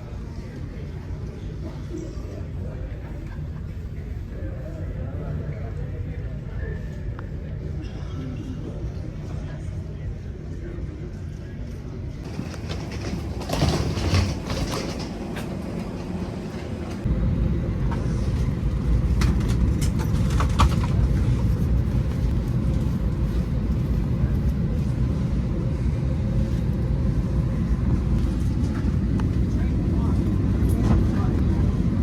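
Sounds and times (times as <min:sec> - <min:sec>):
train running with low rumble: 0:00.0 - 0:32.0.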